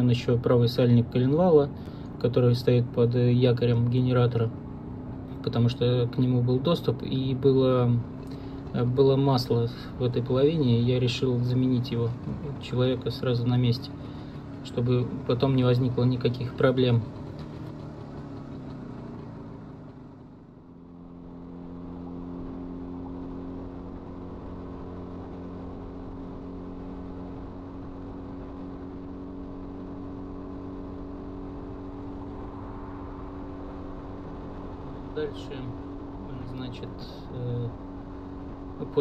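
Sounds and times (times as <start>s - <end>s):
two-stroke motorcycle engine running: 11.7s - 39.0s.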